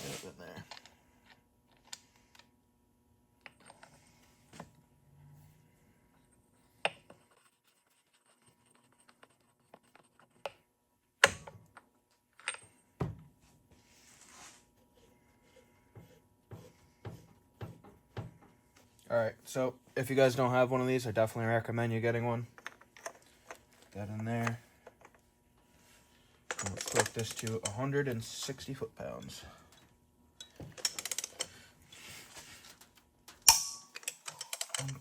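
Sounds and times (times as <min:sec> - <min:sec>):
metal tools clinking: 0:26.5 - 0:28.4, 0:30.4 - 0:31.6, 0:33.5 - 0:35.0.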